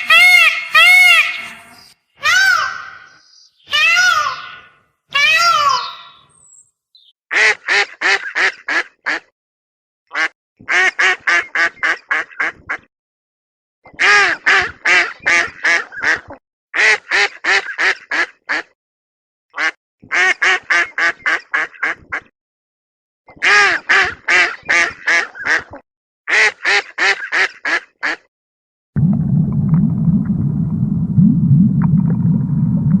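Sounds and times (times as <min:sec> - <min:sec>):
duck quacking: 0:00.0 - 0:01.9, 0:07.3 - 0:09.3, 0:10.1 - 0:12.9, 0:14.0 - 0:18.8, 0:19.6 - 0:22.3, 0:23.4 - 0:28.3
low steady rumble: 0:29.0 - 0:33.0.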